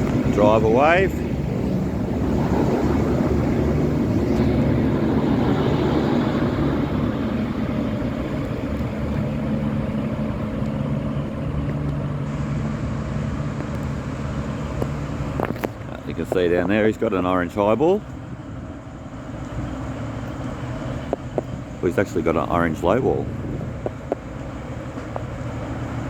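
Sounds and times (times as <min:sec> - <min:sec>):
diesel train engines droning: 0:00.0 - 0:26.0.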